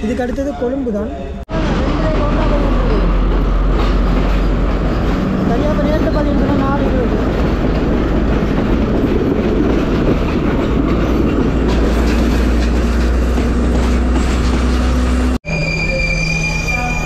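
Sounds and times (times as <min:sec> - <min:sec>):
train wheels rumbling: 0:00.0 - 0:17.0
clicking over rail joints: 0:07.3 - 0:15.0.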